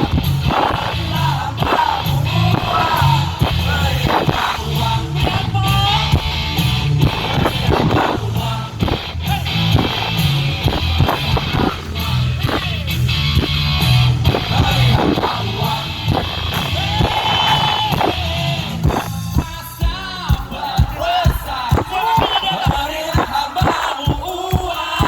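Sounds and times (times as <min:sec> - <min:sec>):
person singing: 0:00.0 - 0:10.0
heavy bass: 0:00.0 - 0:20.8
live rock band playing: 0:00.0 - 0:23.2.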